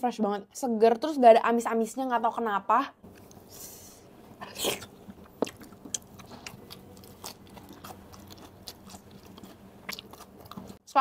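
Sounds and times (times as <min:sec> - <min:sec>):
quiet chewing: 0:04.5 - 0:10.8.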